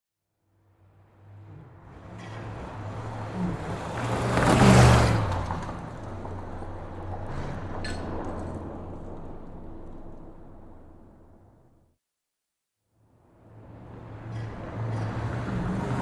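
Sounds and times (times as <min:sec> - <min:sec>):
car engine speeding past: 0:01.2 - 0:11.2, 0:13.5 - 0:16.0.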